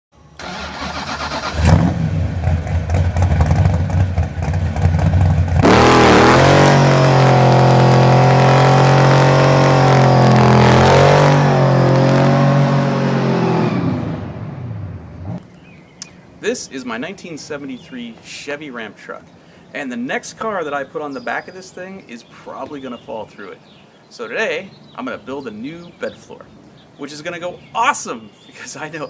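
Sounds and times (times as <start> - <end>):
engine running and revving: 1.2 - 15.4.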